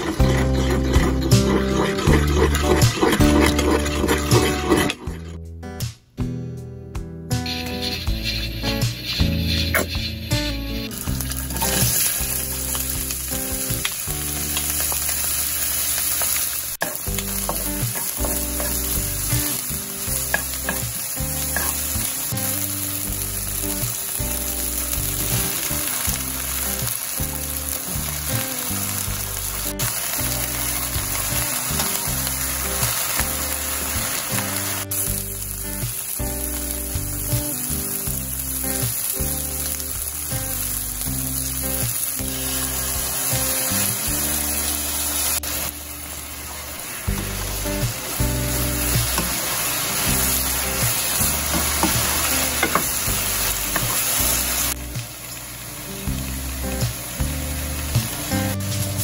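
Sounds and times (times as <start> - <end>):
food sizzling in oil: 0.0 - 5.0, 7.4 - 59.0
stirring in a wok: 0.0 - 5.1, 7.4 - 13.2.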